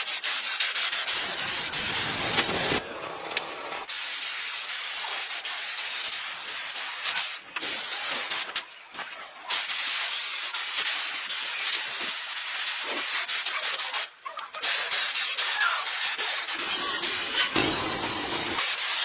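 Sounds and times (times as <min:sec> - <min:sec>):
high-pressure spray jet hissing: 0:00.0 - 0:02.8, 0:03.9 - 0:08.7, 0:09.5 - 0:19.0.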